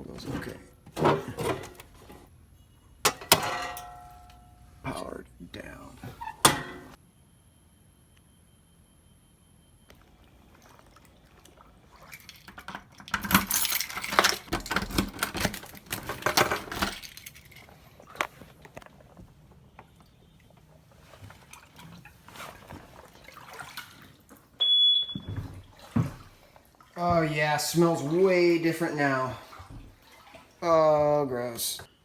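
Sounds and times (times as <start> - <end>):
metal keys jangling: 13.1 - 14.5.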